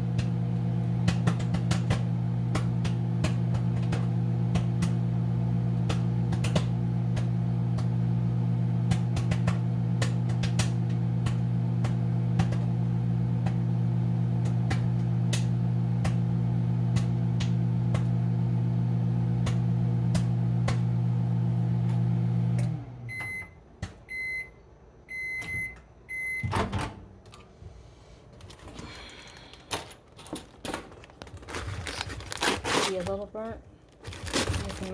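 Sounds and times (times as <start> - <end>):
popcorn popping: 0.0 - 18.3, 19.3 - 21.0, 30.7 - 34.9
microwave humming: 0.0 - 34.9
microwave beeps: 22.2 - 27.0.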